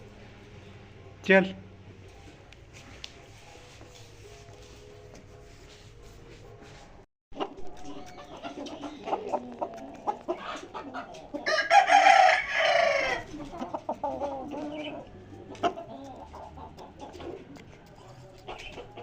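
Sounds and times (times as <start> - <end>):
birds calling: 7.4 - 19.0.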